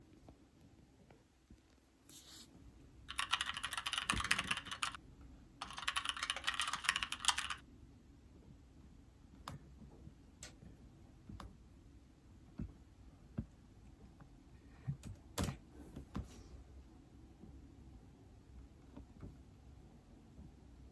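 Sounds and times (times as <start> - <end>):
typing on tablet keyboard: 3.1 - 5.0, 5.6 - 7.6.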